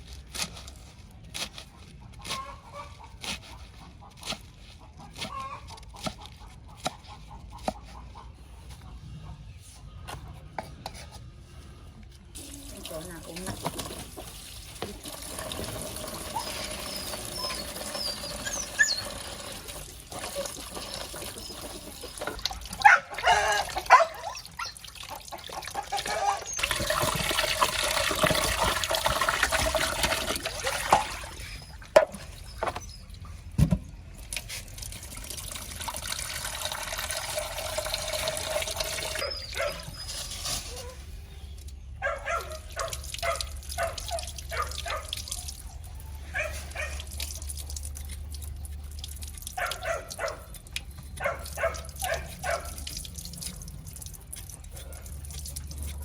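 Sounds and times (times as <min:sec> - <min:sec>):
water running from a tap: 0:12.4 - 0:31.5, 0:34.7 - 0:39.3.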